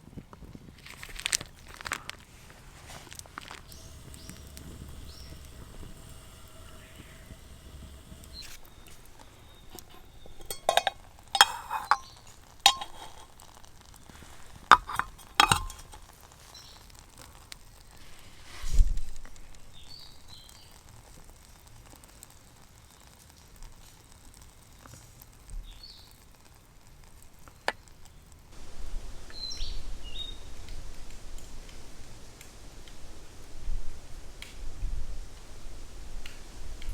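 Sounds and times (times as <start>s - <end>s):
sharp clicks and clinks: 3.7s - 13.5s, 14.6s - 16.1s.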